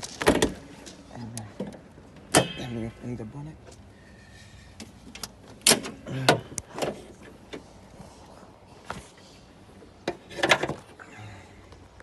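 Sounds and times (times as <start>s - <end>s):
car bonnet clunks and clicks: 1.6s - 2.7s, 4.8s - 7.7s, 10.0s - 10.9s.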